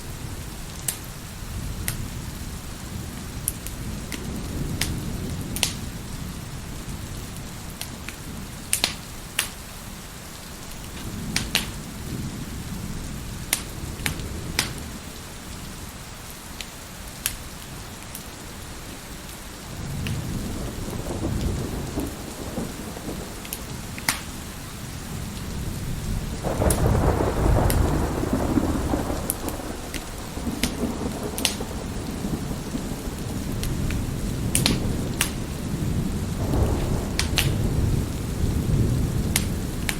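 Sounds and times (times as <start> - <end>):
wood fire crackling: 0.0 - 2.6, 3.2 - 15.4, 16.3 - 39.9
thunder rumbling: 0.0 - 9.1, 19.6 - 39.9
steady rain: 0.0 - 39.9.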